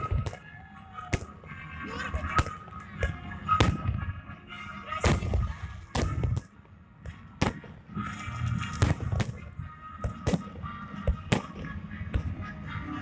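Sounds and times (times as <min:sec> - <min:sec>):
music playing: 0:00.0 - 0:13.0
firework bangs: 0:05.0 - 0:06.5, 0:08.6 - 0:12.4.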